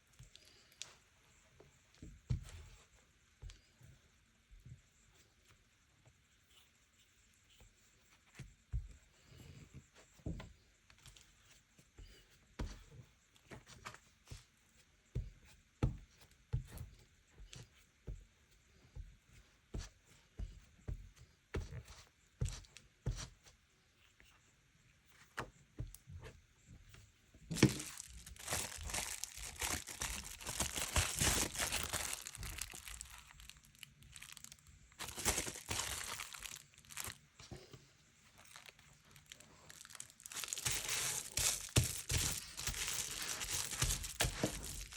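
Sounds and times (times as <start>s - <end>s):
paper rustling and tapping: 27.5s - 37.2s, 39.7s - 44.9s
paper tearing and crinkling: 27.5s - 37.2s, 38.4s - 44.9s.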